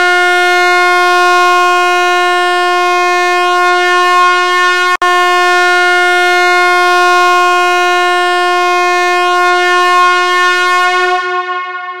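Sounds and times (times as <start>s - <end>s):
sustained steady tone: 8.0s - 12.0s.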